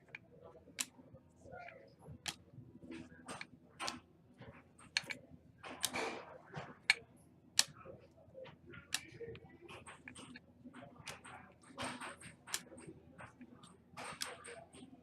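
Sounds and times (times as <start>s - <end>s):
cards clicking and snapping: 2.3s - 4.0s, 11.1s - 14.9s.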